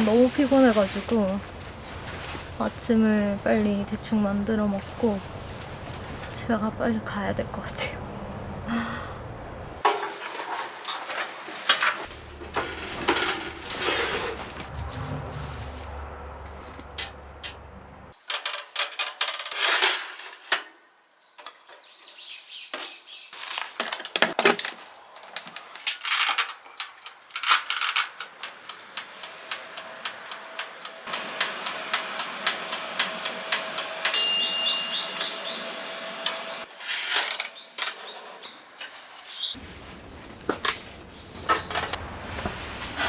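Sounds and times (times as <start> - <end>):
kitchen utensils and dishes clicking: 11.8 - 14.6.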